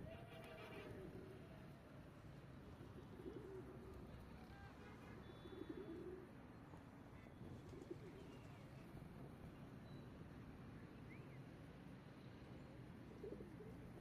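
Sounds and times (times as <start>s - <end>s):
pigeons cooing: 3.0s - 3.7s.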